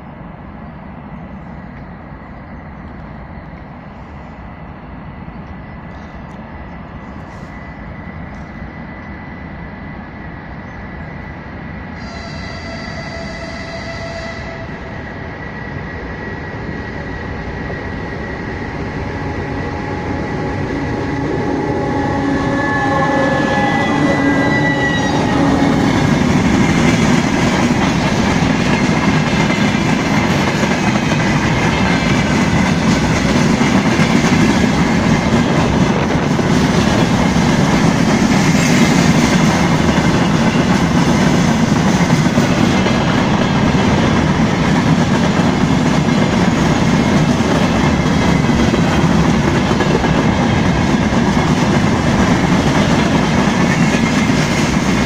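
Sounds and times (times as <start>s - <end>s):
diesel locomotive engine: 0.0s - 55.0s
train horn blast: 12.0s - 14.9s, 21.2s - 26.1s.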